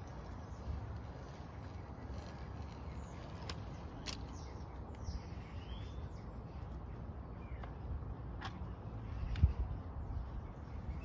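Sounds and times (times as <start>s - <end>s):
outdoor background rumble: 0.0s - 11.0s
bird chirps: 0.1s - 7.9s.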